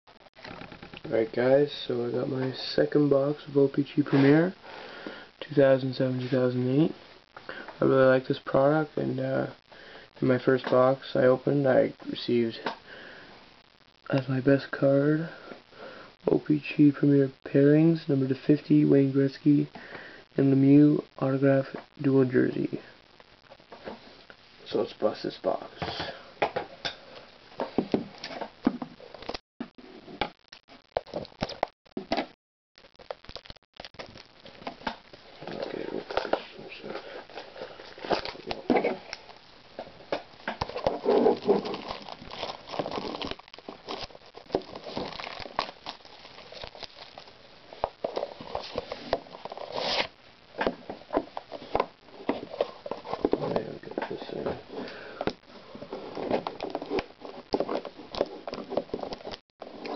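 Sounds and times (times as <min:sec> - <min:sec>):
cardboard and wrapping crinkling: 0:29.1 - 0:59.9.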